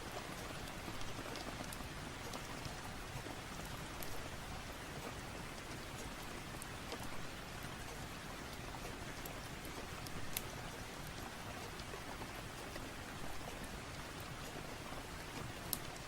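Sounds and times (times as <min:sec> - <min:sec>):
steady rain hiss: 0:00.0 - 0:16.0
faint clicks: 0:15.6 - 0:16.0.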